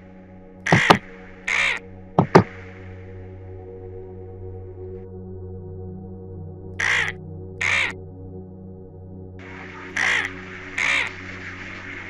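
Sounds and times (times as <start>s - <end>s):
background music: 0.0s - 12.0s
harsh bird caws: 0.7s - 2.5s, 6.8s - 8.0s, 9.4s - 12.0s.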